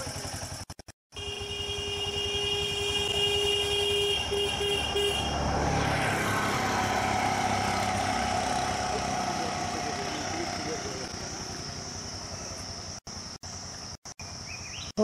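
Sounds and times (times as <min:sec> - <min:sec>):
vehicle engine running: 0:00.0 - 0:14.9
engine and road noise rush: 0:00.0 - 0:15.0
vehicle horn tooting: 0:01.1 - 0:05.4.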